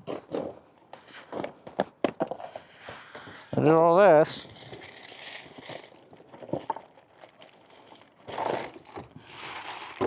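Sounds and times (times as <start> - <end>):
packaging crinkling and rustling: 4.4 - 10.0.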